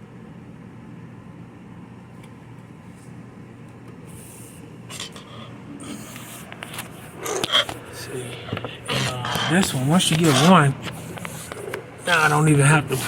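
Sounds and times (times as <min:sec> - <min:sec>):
steady low hum: 0:00.0 - 0:13.0
scraping of appliance leg: 0:05.0 - 0:12.4.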